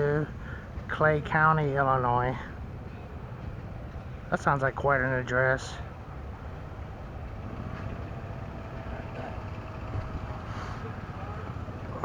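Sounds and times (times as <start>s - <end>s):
engine running: 5.8s - 12.0s.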